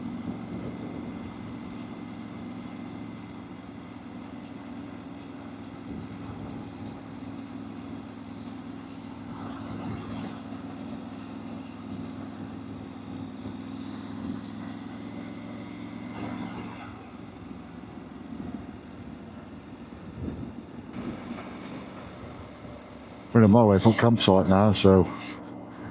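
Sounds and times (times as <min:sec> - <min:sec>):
wind and road noise: 0:15.3 - 0:25.9
motorcycle engine cruising: 0:15.4 - 0:25.9.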